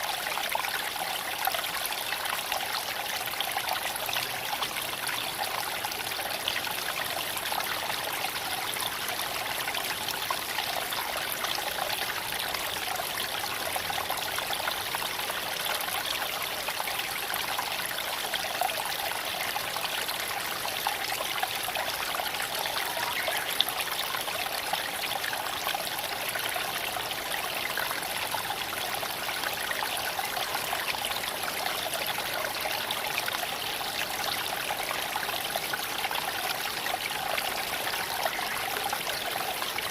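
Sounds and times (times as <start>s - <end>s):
creek water flowing over stones: 0.0s - 39.9s.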